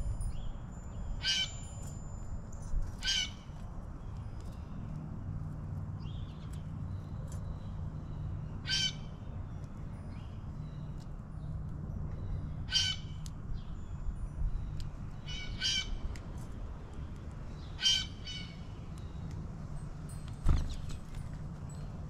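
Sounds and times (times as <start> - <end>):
bird squawking: 3.0 - 3.4, 8.6 - 9.1, 12.7 - 13.2, 15.3 - 16.0, 17.8 - 18.6.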